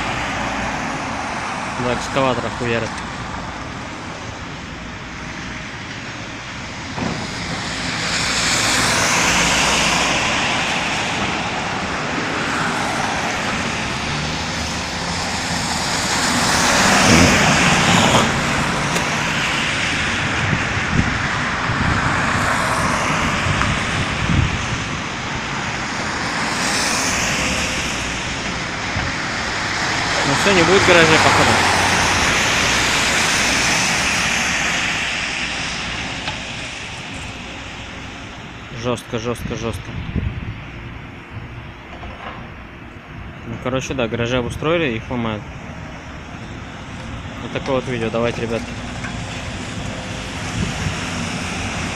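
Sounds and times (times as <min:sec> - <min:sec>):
diesel engine: 0:00.0 - 0:38.8, 0:39.8 - 0:51.9
loud crash: 0:16.8 - 0:19.2.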